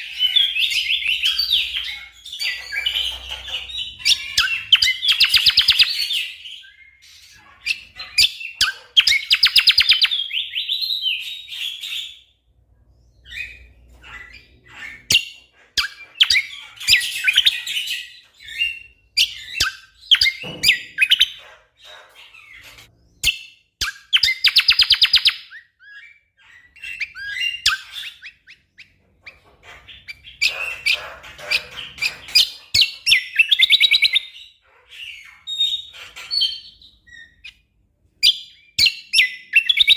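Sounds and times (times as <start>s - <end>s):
bird rapid rattling song: 0.0s - 12.2s, 13.2s - 37.6s.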